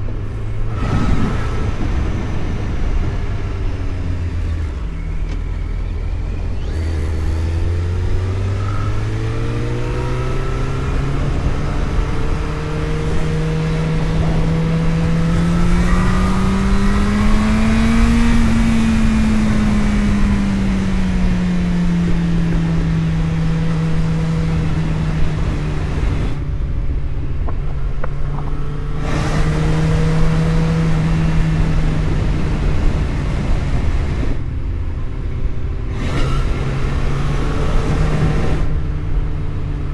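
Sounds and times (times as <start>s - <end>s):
car engine accelerating: 0.0s - 39.9s
road noise: 0.0s - 39.9s.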